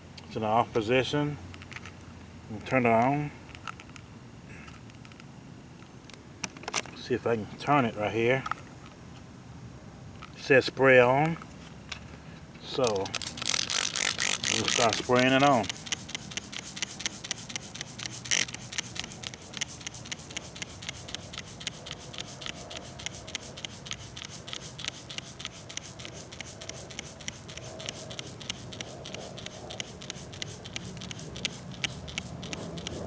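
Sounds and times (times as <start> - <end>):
spray bottle hissing sprays: 12.8 - 33.0.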